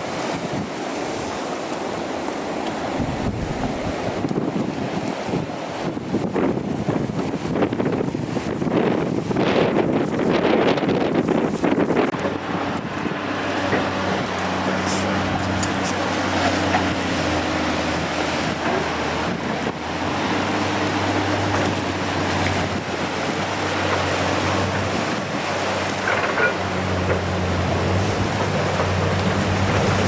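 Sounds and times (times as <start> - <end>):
steady wind noise: 0.0 - 30.0
low engine-like hum: 12.1 - 30.0.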